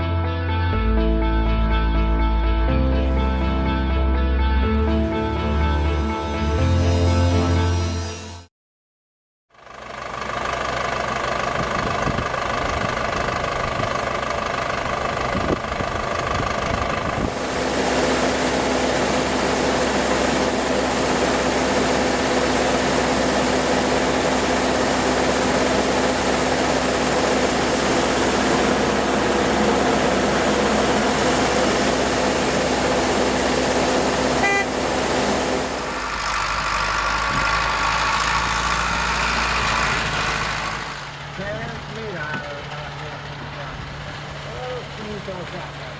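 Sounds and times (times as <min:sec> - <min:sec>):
farm machinery engines running: 0:09.6 - 0:45.9
steady whine: 0:10.0 - 0:45.9.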